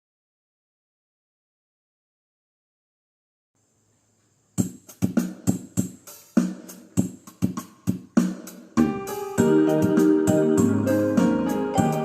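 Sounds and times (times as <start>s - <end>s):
wooden xylophones playing: 8.8s - 12.0s.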